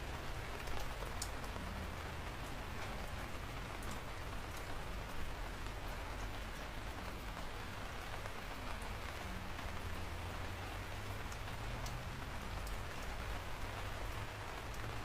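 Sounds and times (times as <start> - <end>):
steady rain falling: 0.0 - 15.0
single raindrops ticking: 11.2 - 13.2.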